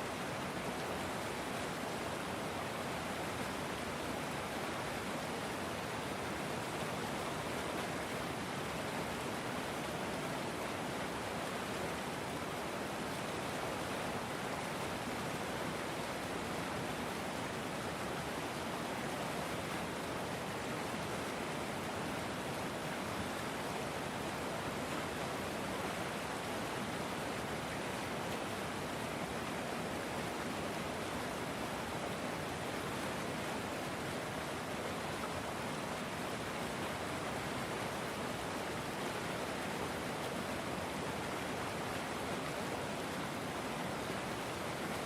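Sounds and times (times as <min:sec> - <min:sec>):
river water rushing: 0:00.0 - 0:45.0.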